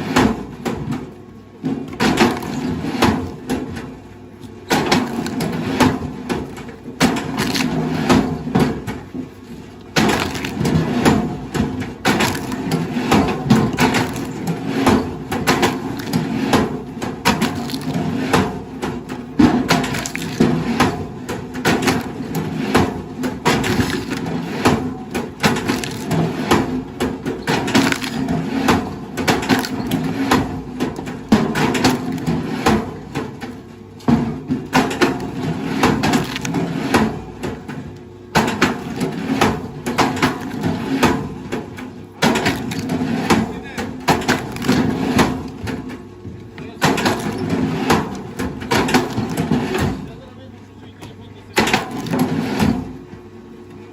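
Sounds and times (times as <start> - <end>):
steady low hum: 0.0 - 53.9
wood cracking and splintering: 1.8 - 3.9, 4.6 - 46.0, 46.6 - 50.3, 51.6 - 53.0.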